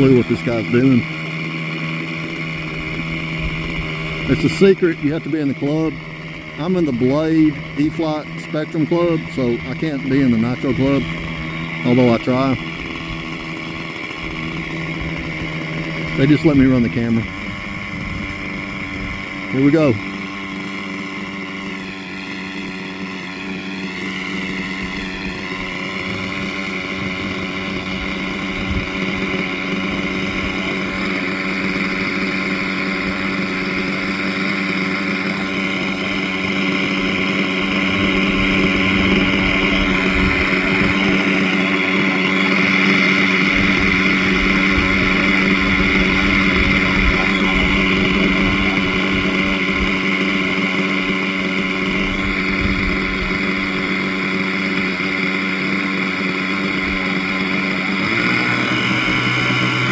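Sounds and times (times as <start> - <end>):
model helicopter engine buzzing: 0.0 - 59.9.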